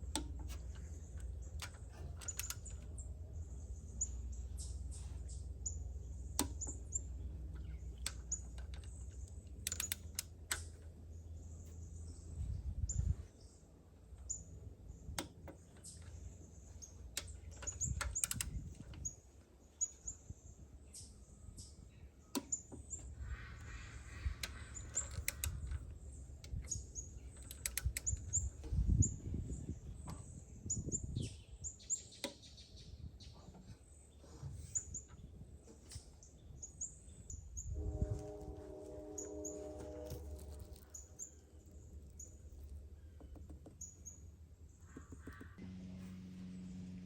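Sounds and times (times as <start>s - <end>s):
sharp clicks: 0.0s - 3.1s, 6.3s - 10.9s, 15.1s - 19.1s, 23.6s - 28.7s
birds chirping: 0.0s - 45.7s.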